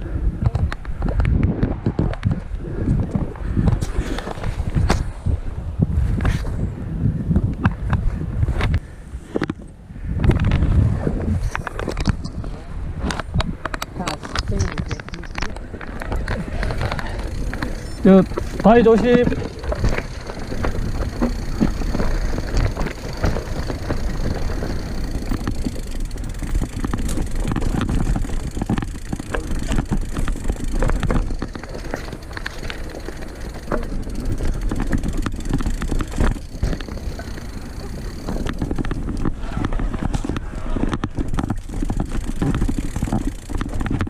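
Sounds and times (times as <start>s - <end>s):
bike tyres bumping over rocks: 10.3s - 44.0s.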